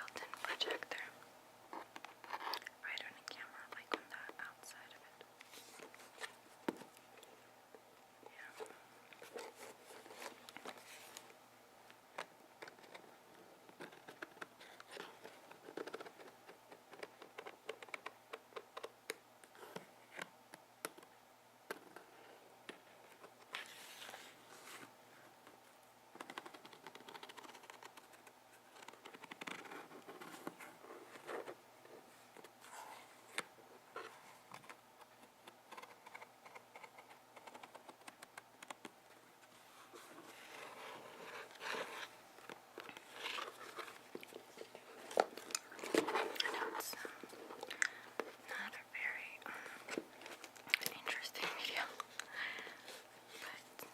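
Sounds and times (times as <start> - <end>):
soft scraping and rustling: 5.4 - 7.0, 8.3 - 11.4, 23.1 - 24.9.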